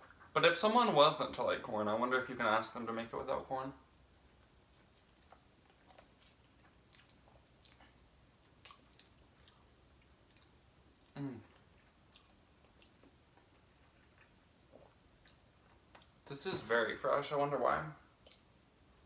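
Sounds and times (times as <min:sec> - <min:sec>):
chewing and mouth sounds: 0:04.4 - 0:16.2, 0:18.2 - 0:18.5.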